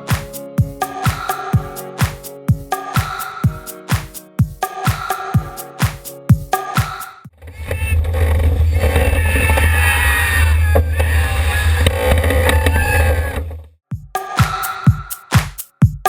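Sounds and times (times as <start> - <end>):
dance music with steady beat: 0.0 - 7.3, 13.9 - 16.0.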